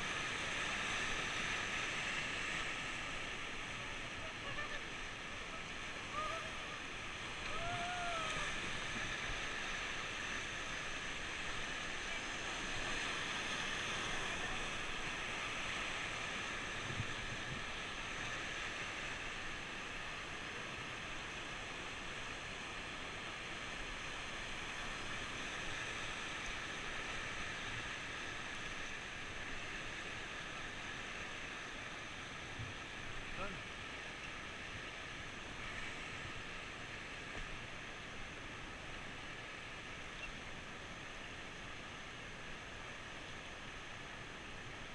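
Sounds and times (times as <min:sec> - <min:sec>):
river water rushing over rapids: 0:00.0 - 0:44.9
person shouting: 0:07.5 - 0:08.5.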